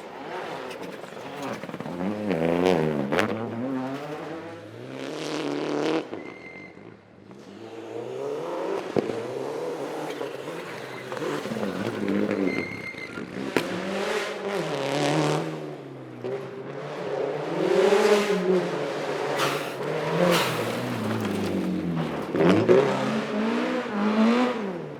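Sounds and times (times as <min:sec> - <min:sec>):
rally car engine revving: 0:00.0 - 0:06.4, 0:07.3 - 0:24.9
sharp cracks: 0:19.4 - 0:22.4.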